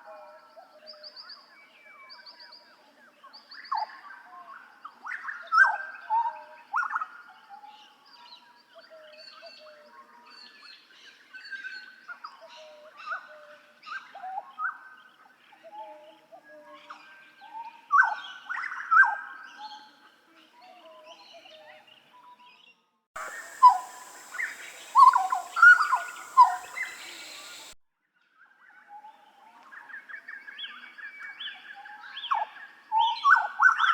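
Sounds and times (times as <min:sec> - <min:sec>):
bird singing fluting whistles: 0:23.2 - 0:27.8.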